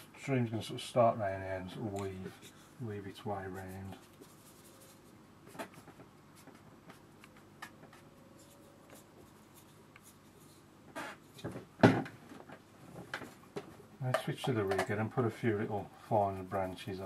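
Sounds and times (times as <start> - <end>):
paintbrush stroking on paper: 2.0 - 7.2, 7.9 - 11.4
knocks: 11.4 - 12.2.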